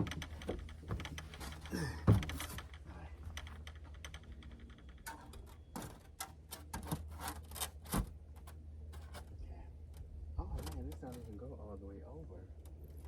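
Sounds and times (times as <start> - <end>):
steady low hum: 0.0 - 13.0
heavy knock: 2.1 - 2.4.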